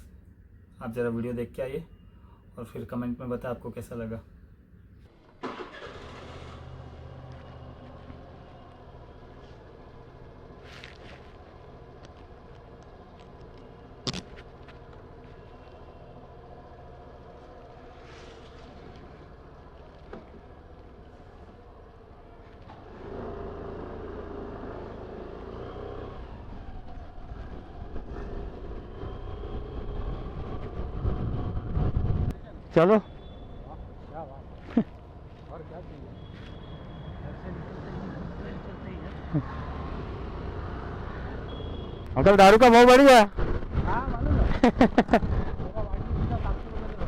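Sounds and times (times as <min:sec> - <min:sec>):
road and wind noise: 0:00.0 - 0:47.0
passing traffic: 0:04.3 - 0:47.0
motorcycle engine humming: 0:04.8 - 0:42.2
wind rumble on microphone: 0:26.7 - 0:32.4, 0:43.3 - 0:47.0.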